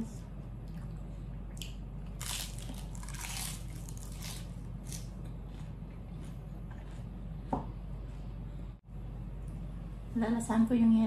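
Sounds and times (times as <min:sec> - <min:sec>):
lettuce crunching: 0:01.6 - 0:05.7.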